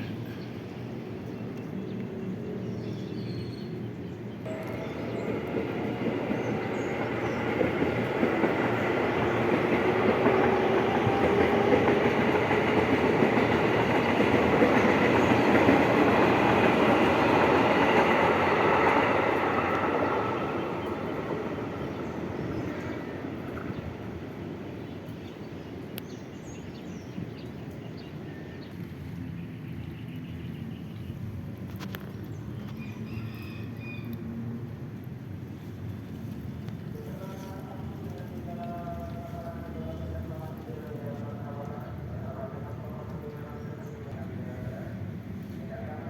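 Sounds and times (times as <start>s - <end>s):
train passing on rails: 3.7s - 32.1s, 33.8s - 46.0s.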